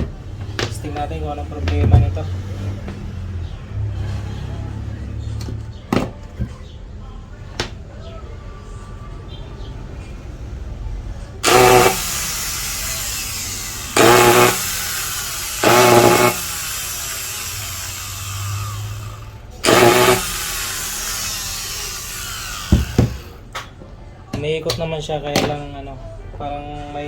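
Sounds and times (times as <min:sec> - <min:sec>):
angle grinder motor running: 0:11.4 - 0:23.4
popping inside grinder: 0:11.4 - 0:23.4.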